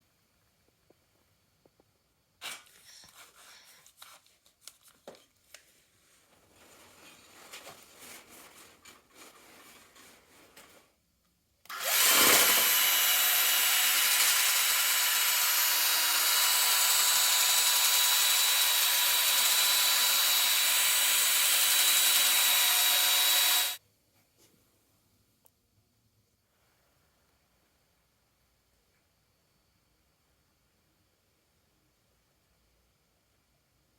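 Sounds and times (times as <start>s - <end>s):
drill spinning whine: 11.7s - 23.8s.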